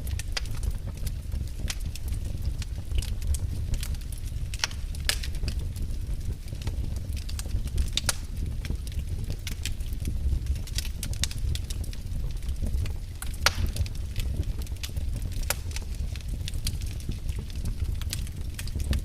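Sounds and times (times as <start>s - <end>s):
burning wood crackling and popping: 0.0s - 19.0s
low rumble of fire flames: 0.0s - 19.0s.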